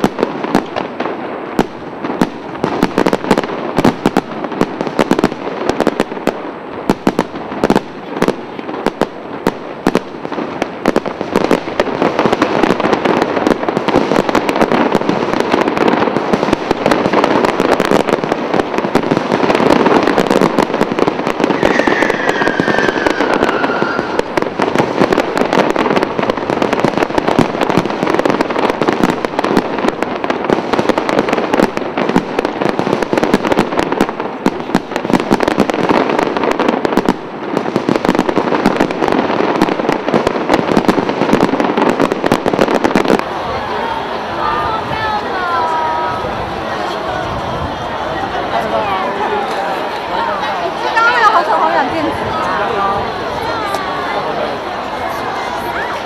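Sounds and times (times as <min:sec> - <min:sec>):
fireworks bangs and crackling: 0:00.0 - 0:56.0
falling whistle: 0:21.6 - 0:24.3.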